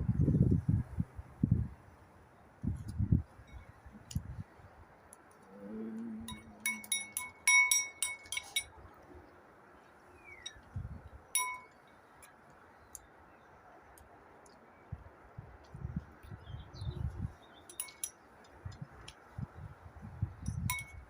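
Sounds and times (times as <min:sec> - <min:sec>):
bright ringing clinks: 0:06.3 - 0:08.7, 0:11.4 - 0:11.8, 0:17.7 - 0:18.2, 0:20.5 - 0:21.0.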